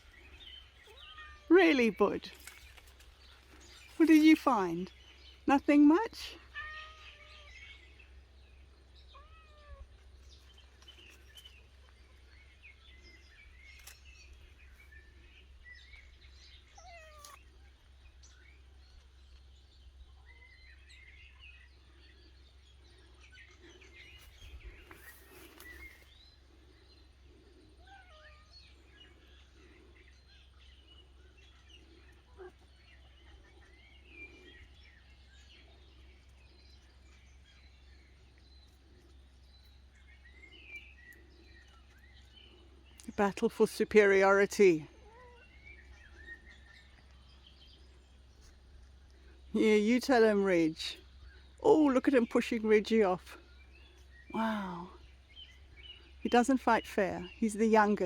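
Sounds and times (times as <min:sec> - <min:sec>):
small birds chirping: 0:00.0 - 0:58.0
soft cat meows: 0:06.5 - 0:07.6, 0:09.2 - 0:09.9, 0:16.8 - 0:17.4, 0:27.8 - 0:28.5.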